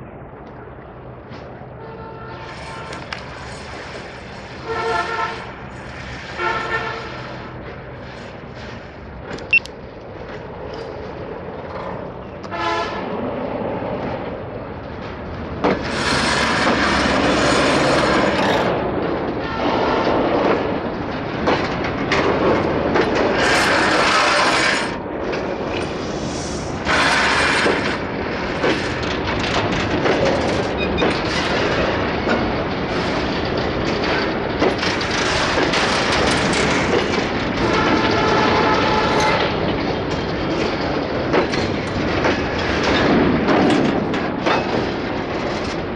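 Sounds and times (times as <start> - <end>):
freight train wheels clattering: 0.4 - 45.9
train horn blast: 1.8 - 3.2, 4.6 - 5.5, 6.4 - 7.2, 12.4 - 13.1, 37.6 - 39.5.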